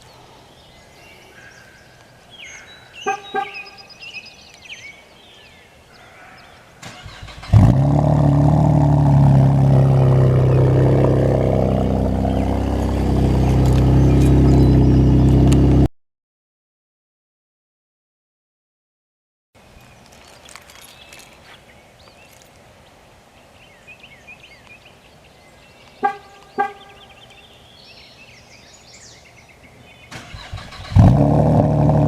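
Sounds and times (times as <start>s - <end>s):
engine starter chirps: 6.8s - 7.8s, 30.1s - 31.7s
car engine starting and idling: 6.8s - 15.9s, 30.1s - 32.0s.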